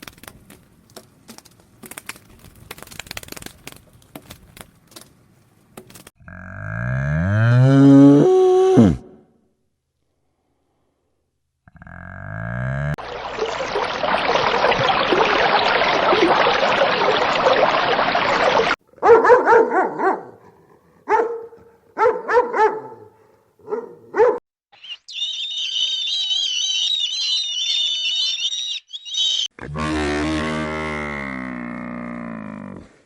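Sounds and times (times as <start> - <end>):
dog barking: 19.0 - 24.4.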